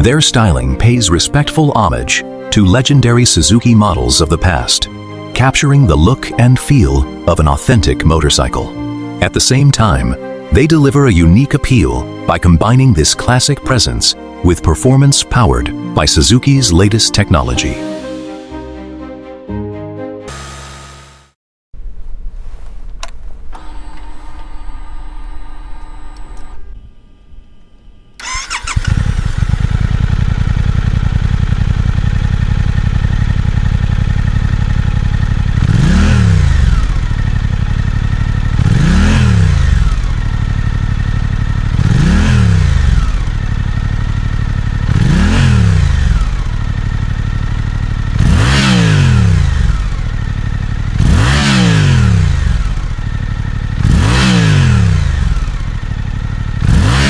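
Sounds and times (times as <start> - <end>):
motorcycle engine idling and revving: 20.3 - 21.4, 28.2 - 57.0.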